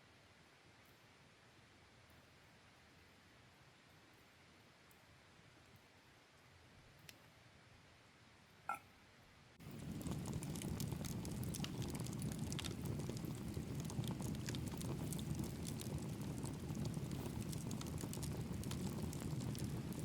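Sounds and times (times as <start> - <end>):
campfire crackling: 9.6 - 20.0.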